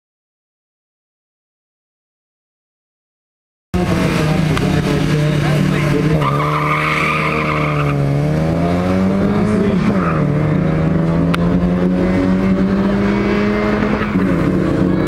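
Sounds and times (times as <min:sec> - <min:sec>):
car engine accelerating: 0:03.8 - 0:15.0
tyres squealing: 0:05.4 - 0:08.0.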